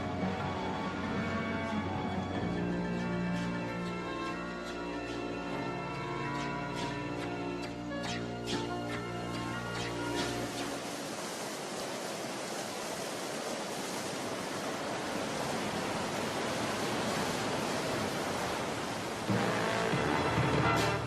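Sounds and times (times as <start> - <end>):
music: 0.0 - 10.8, 19.3 - 21.0
rushing storm noise: 0.0 - 21.0.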